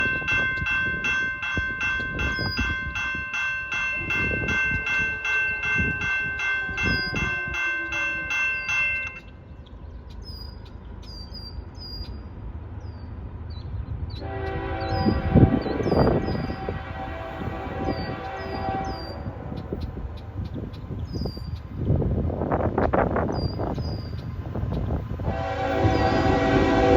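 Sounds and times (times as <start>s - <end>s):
crossing warning bell ringing: 0.0s - 9.4s, 14.2s - 21.6s, 25.3s - 26.9s
birds chirping: 6.4s - 21.8s
locomotive rumble: 10.7s - 26.9s
train horn: 14.2s - 20.2s, 25.2s - 26.9s.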